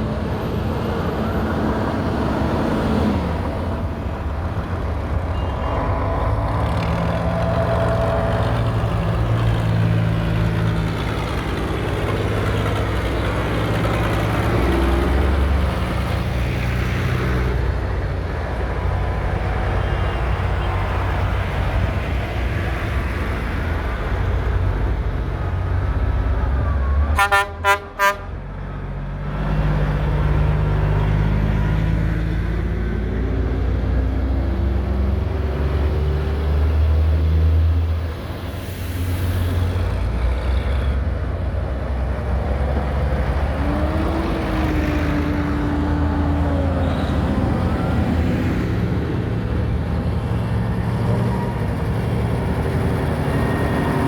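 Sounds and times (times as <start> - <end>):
tractor diesel engines: 0.0 - 54.0
vehicle horn tooting: 26.6 - 28.3.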